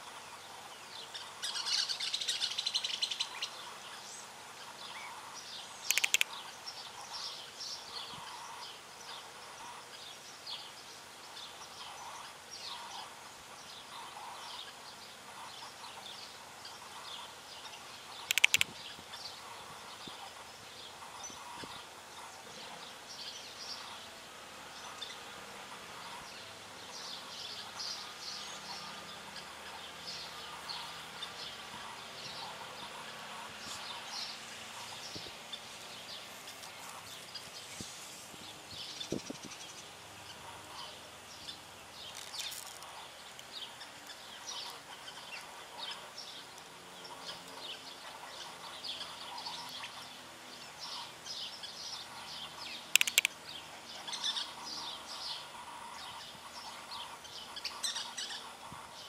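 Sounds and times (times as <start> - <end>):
small birds chirping: 0.0 - 59.0
sharp loud click: 5.9 - 6.3, 53.0 - 53.3.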